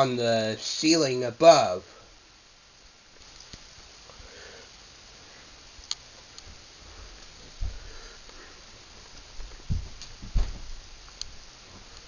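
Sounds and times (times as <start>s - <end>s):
faint steady hiss: 0.0s - 12.0s
low thump: 9.7s - 10.7s.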